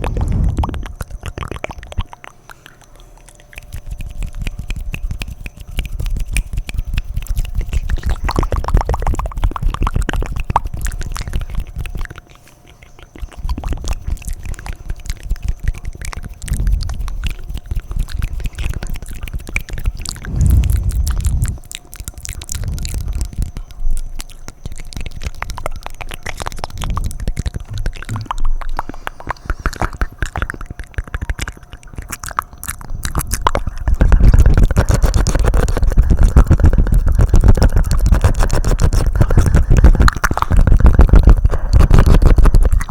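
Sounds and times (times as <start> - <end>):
low rumble: 0.0 - 1.5, 20.1 - 24.0
wet mouth clicking and smacking: 0.0 - 42.9.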